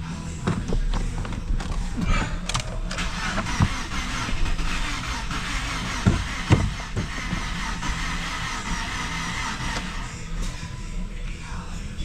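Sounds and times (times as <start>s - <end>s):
truck engine running: 0.0s - 11.6s
sharp knocks: 6.0s - 7.1s.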